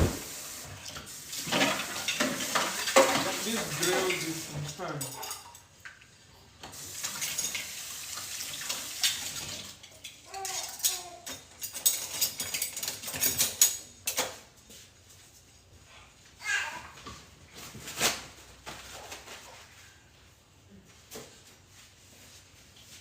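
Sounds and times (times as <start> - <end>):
pots and pans clattering: 0.0 - 5.7, 6.6 - 14.5
tap water running: 0.0 - 10.2.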